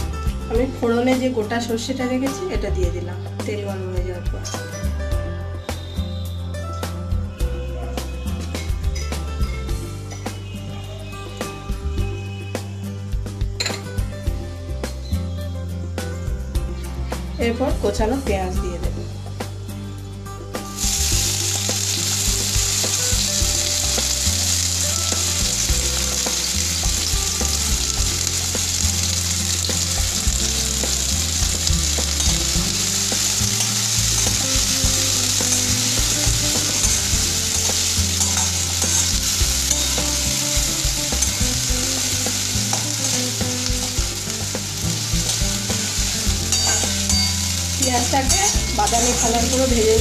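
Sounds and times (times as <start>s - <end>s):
onion sizzling in hot oil: 20.6s - 50.0s.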